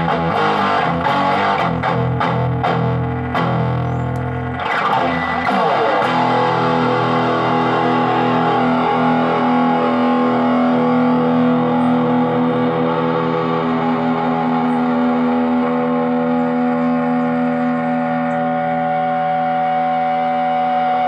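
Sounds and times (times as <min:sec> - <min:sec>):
distorted electric guitar chord: 0:00.0 - 0:21.0.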